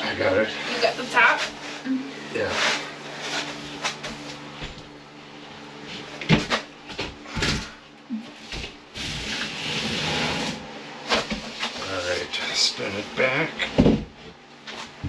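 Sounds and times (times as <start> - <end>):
drywall panel scraping on framing: 8.4 - 11.9.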